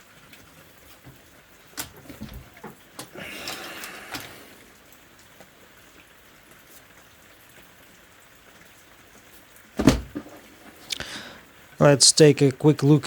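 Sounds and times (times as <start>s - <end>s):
heavy thump: 9.8s - 10.4s.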